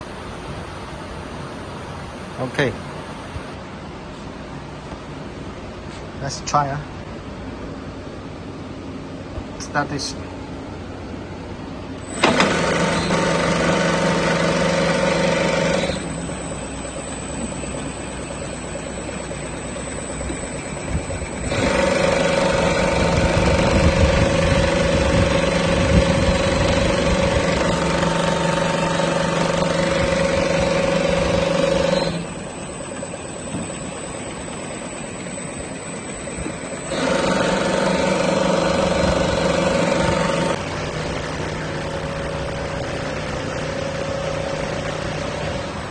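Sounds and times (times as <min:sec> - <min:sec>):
quieter machine hum: 0:00.0 - 0:45.9
sewing machine running: 0:12.0 - 0:45.9.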